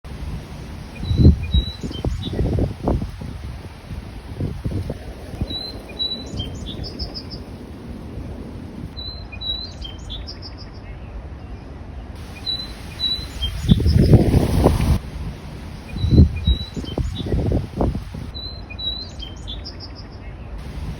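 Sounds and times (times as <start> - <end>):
low rumbling noise: 0.1 - 9.0, 12.2 - 18.4, 20.6 - 20.9
songbird whistling and trilling: 1.0 - 2.7, 9.0 - 10.8, 15.9 - 17.6, 18.3 - 20.0.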